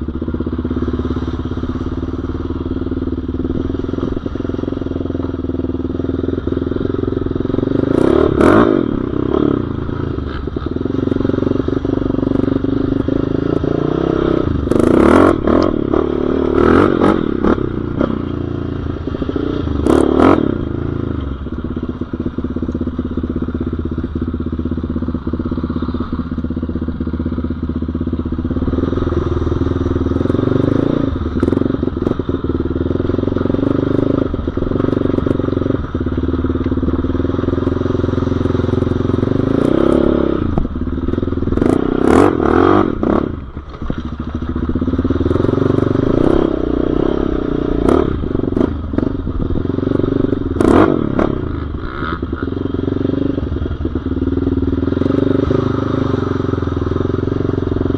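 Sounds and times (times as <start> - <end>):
off-road motorcycle engine revving: 0.0 - 57.9
knocks and clatter over rough ground: 43.4 - 46.3.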